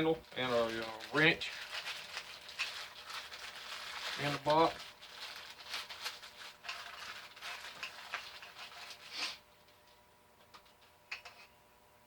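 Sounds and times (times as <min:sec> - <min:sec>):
packaging rustling: 0:00.2 - 0:09.8.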